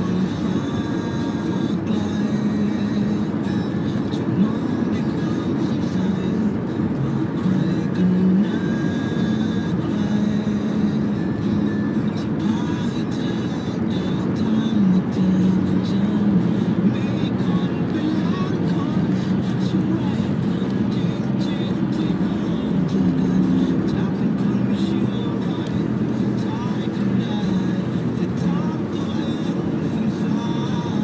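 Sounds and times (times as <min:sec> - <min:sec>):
car engine and road noise: 0:00.0 - 0:31.0
music playing: 0:00.0 - 0:31.0.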